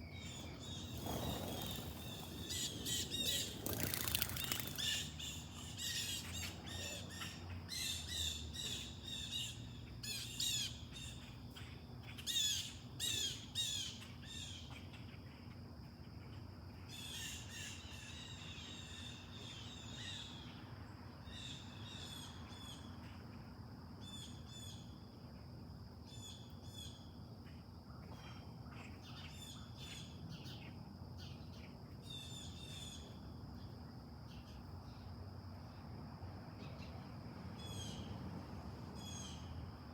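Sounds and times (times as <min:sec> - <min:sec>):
birds calling harshly: 0:00.0 - 0:10.7
bird chips: 0:00.2 - 0:06.2.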